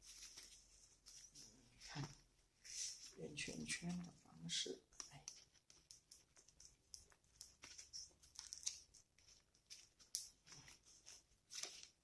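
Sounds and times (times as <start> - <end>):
wire scraping and clicking with pliers: 5.0 - 12.0.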